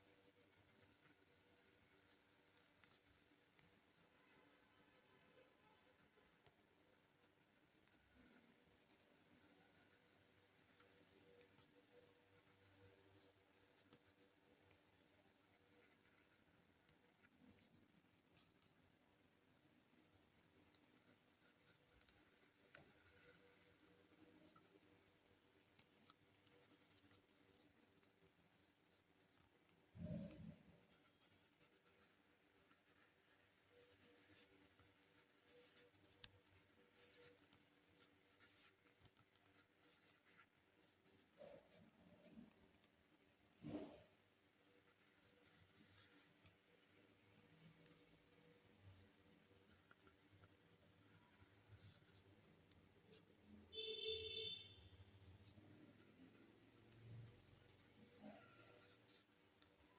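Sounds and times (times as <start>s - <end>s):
pencil scratching on paper: 0.0s - 4.5s, 5.2s - 18.8s, 20.7s - 46.8s, 47.8s - 54.6s, 55.2s - 59.9s
drawing tool scratching paper: 20.8s - 25.2s, 25.8s - 42.5s, 57.8s - 59.3s.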